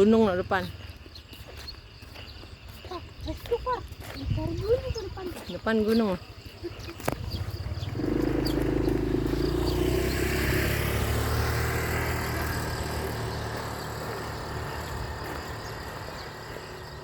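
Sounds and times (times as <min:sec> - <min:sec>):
vehicle engine passing by: 0:07.3 - 0:17.0.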